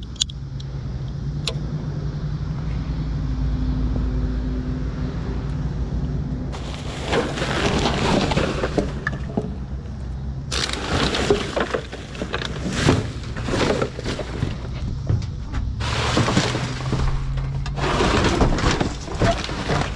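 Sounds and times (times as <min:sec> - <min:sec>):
scrap metal clanking onto pile: 0:06.6 - 0:09.8, 0:10.5 - 0:19.9.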